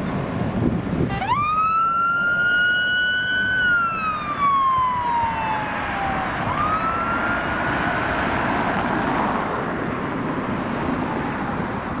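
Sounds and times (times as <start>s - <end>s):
traffic noise: 0.0s - 12.0s
fire engine siren wailing: 1.0s - 9.2s.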